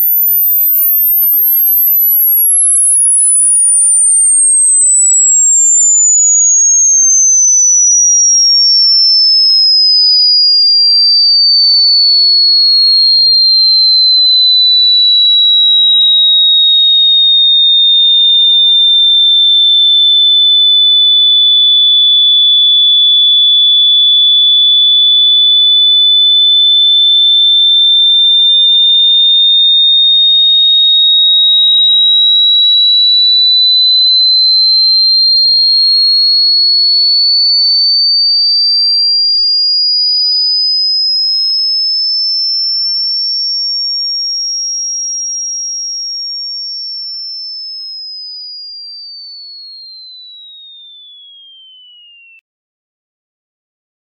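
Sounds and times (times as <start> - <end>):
high-pitched electronic tone: 0.0 - 15.0, 33.2 - 40.1.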